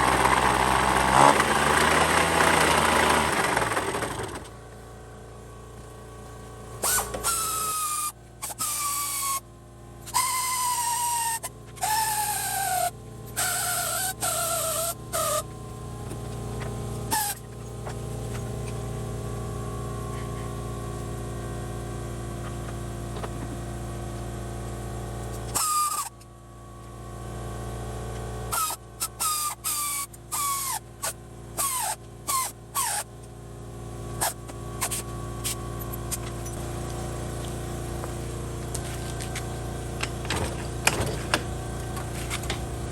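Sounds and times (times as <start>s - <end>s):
two-stroke scooter engine running: 0.0s - 9.4s, 10.0s - 25.9s, 27.5s - 42.9s
short falling engine squeals: 6.8s - 15.6s, 17.1s - 17.7s, 25.4s - 26.3s, 28.5s - 33.1s.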